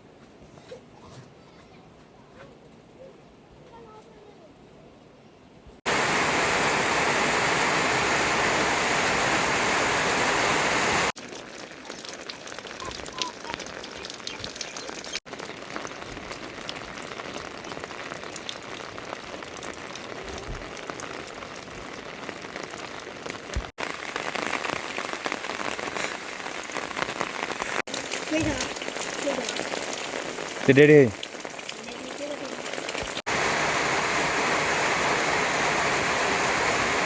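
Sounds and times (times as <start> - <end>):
heavy rain falling: 5.9 - 37.0
raindrops ticking: 11.1 - 33.3.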